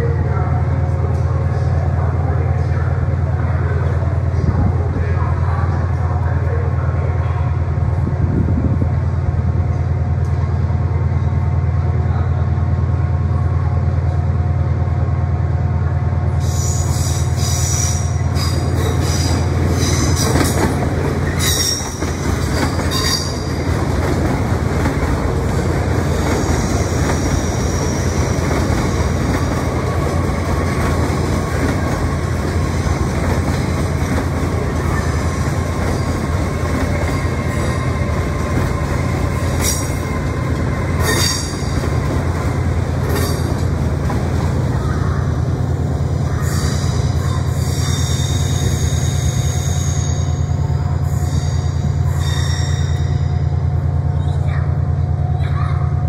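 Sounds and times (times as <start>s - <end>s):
rumble of wheels on rail: 0.0s - 56.0s
train wheels squealing: 16.4s - 20.6s, 21.2s - 23.6s, 26.3s - 29.2s, 41.0s - 41.8s, 46.4s - 53.4s.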